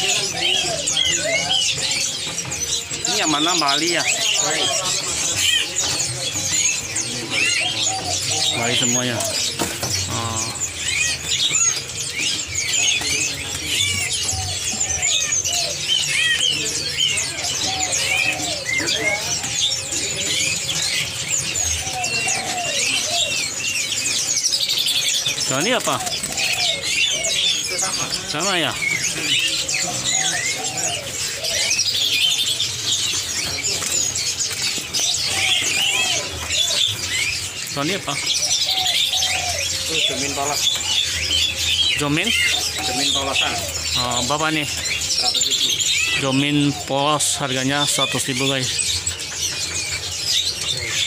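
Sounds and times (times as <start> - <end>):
caged songbirds chirping and whistling: 0.0 - 51.0.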